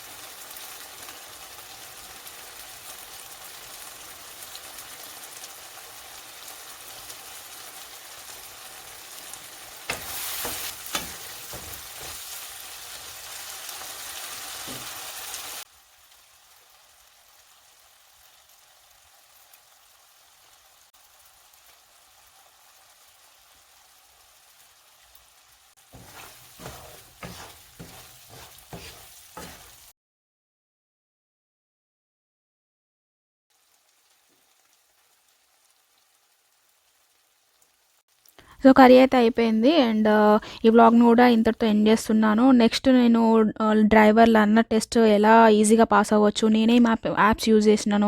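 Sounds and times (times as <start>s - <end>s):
curry sizzling in a pan: 0.0s - 29.9s, 33.5s - 41.5s
stirring knocks: 9.8s - 12.2s, 25.8s - 29.9s.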